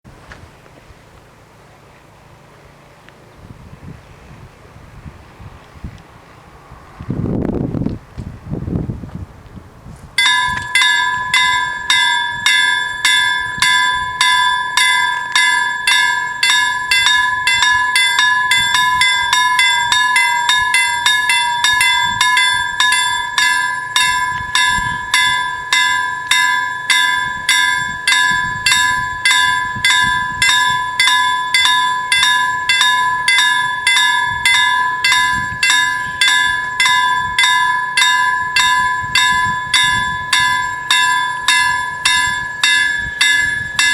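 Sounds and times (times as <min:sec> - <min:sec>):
level crossing warning bells: 0:10.2 - 0:43.9.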